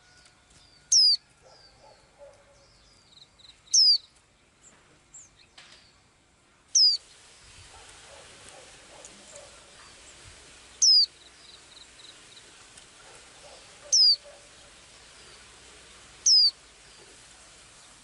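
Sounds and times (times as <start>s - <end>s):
faint high bird chips: 6.8s - 7.0s, 10.8s - 12.4s, 13.1s - 15.5s, 16.2s - 16.6s.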